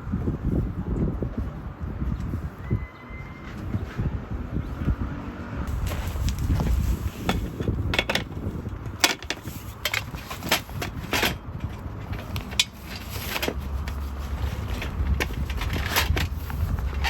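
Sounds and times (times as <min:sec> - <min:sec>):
steady low rumble: 0:04.1 - 0:17.0.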